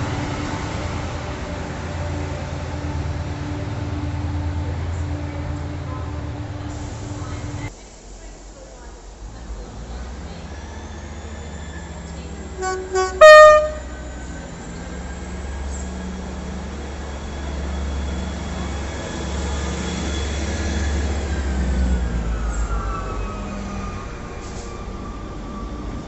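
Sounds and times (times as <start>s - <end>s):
train rumbling with whine: 0.0s - 26.0s
train horn: 12.4s - 14.5s.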